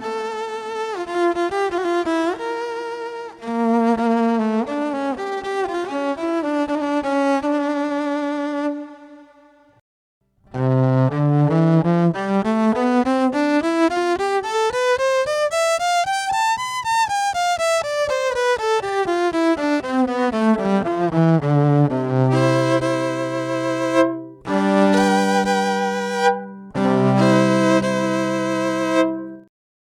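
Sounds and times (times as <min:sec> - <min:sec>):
electric violin bowed note: 0:00.0 - 0:09.5, 0:10.5 - 0:29.5
electric violin bowed run: 0:17.8 - 0:29.5.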